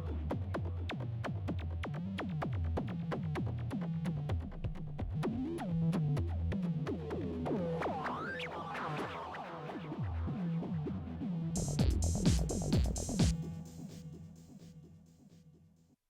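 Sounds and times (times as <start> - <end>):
synthesizer electronic pattern: 0.0 - 14.7
repeating synth bass line: 11.6 - 13.7.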